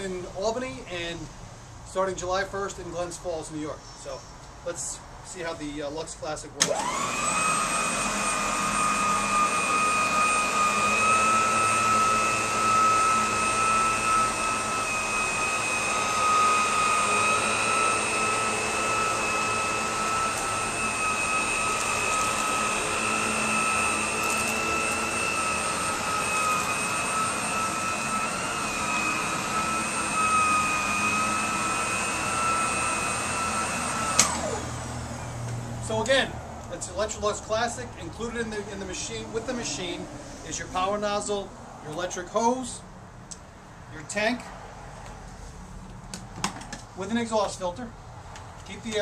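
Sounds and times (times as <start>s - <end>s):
vacuum cleaner running: 6.6s - 36.1s, 38.2s - 41.2s.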